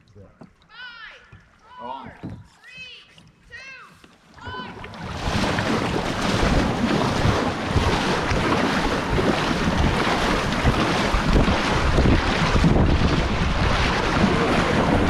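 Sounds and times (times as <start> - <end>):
river water rushing: 4.4 - 15.0
wind rumbling on microphone: 4.9 - 15.0.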